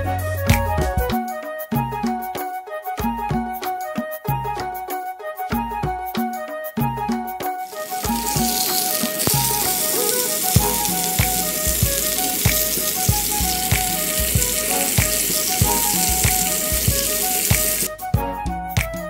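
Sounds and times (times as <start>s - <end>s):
background music with steady beat: 0.0s - 19.0s
fish sizzling in oil: 7.7s - 17.9s.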